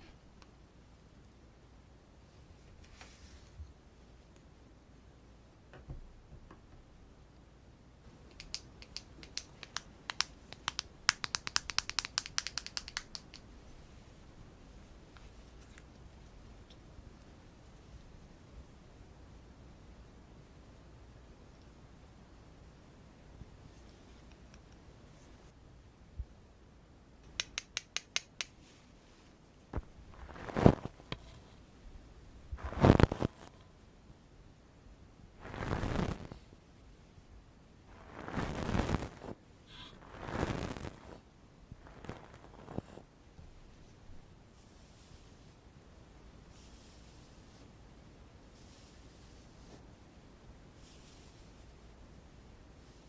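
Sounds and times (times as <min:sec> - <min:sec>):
makeup items clicking and tapping: 0:08.3 - 0:13.5, 0:27.2 - 0:28.6.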